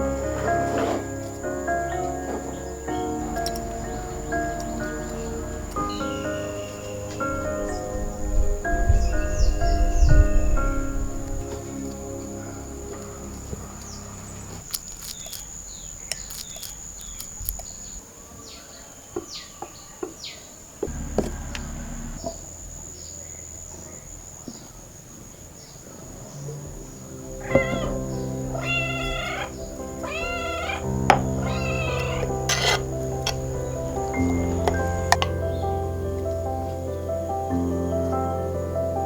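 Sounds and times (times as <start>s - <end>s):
soft background music: 0.0s - 14.7s, 26.2s - 39.0s
cat meowing: 27.4s - 32.8s.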